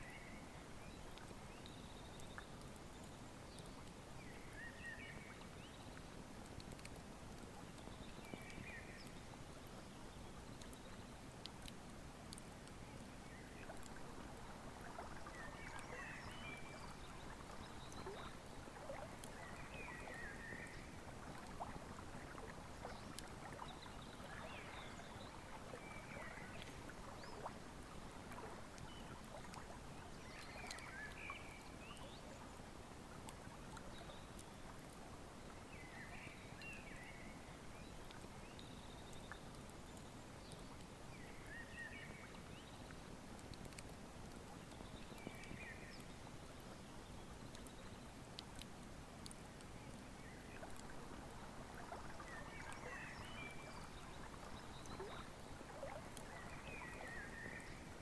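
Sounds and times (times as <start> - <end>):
river flowing: 50.2 - 58.0.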